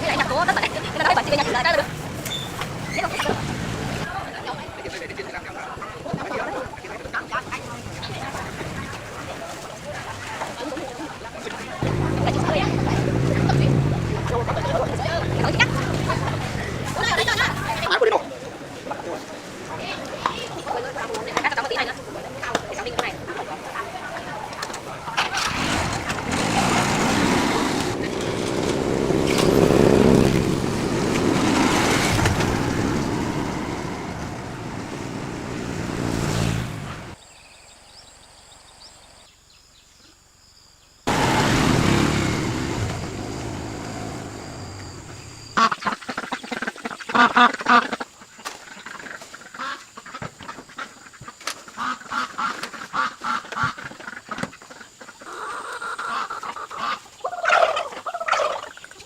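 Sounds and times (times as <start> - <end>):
loud even noise: 11.8 - 17.9, 25.0 - 37.2, 41.1 - 45.6
harsh poultry calls: 45.6 - 59.0.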